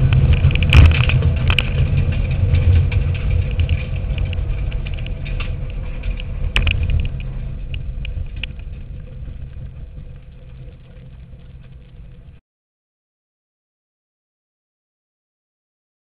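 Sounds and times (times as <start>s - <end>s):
car engine low rumble: 0.0s - 12.4s
ticks: 0.1s - 12.4s.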